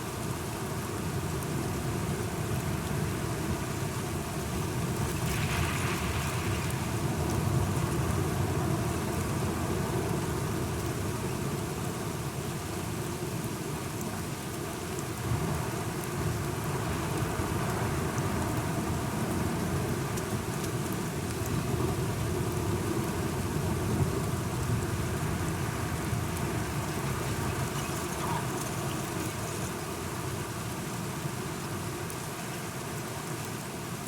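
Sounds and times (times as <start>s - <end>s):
steady rain falling: 0.0s - 34.0s
raindrop ticks: 26.3s - 29.9s.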